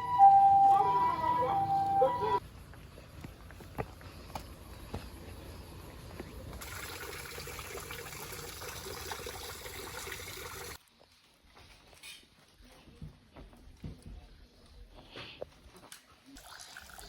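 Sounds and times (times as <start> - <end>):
running water hiss: 6.6 - 10.8.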